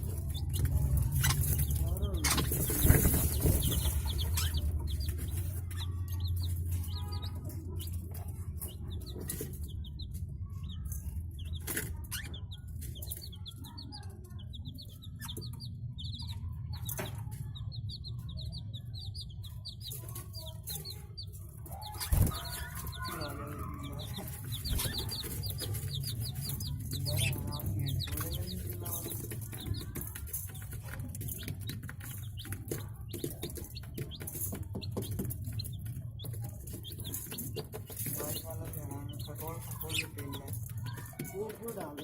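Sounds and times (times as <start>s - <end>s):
budgerigars chirping: 0.2s - 8.0s, 21.7s - 29.8s, 31.4s - 40.6s.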